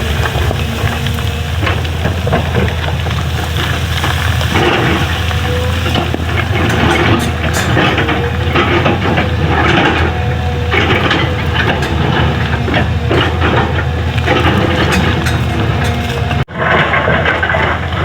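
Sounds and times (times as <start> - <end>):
bucket scraping and crunching: 0.0 - 18.0
diesel engine running: 0.0 - 18.0.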